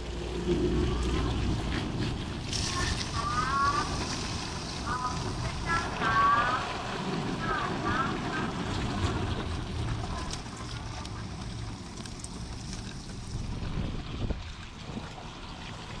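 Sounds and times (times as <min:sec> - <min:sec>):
storm wind buffeting microphone: 0:13.1 - 0:15.0.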